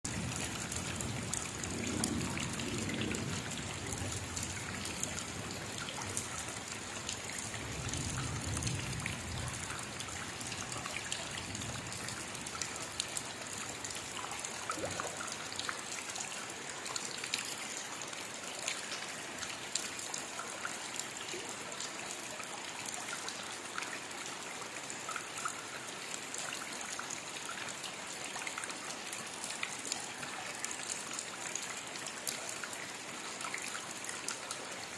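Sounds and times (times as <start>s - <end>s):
raindrops ticking: 0.1s - 24.2s.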